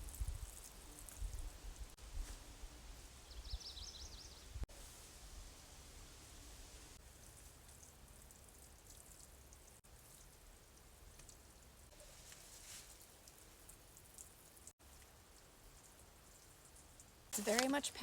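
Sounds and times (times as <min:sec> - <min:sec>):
soft hiss: 0:00.0 - 0:17.9.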